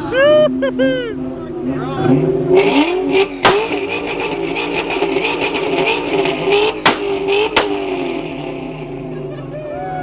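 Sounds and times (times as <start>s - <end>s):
car engine revving: 2.0s - 9.4s
sharp cracks: 3.4s - 8.4s.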